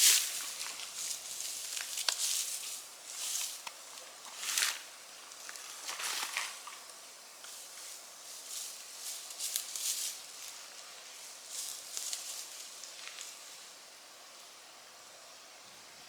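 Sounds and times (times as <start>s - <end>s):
footsteps crunching on dry litter: 0.0s - 13.7s.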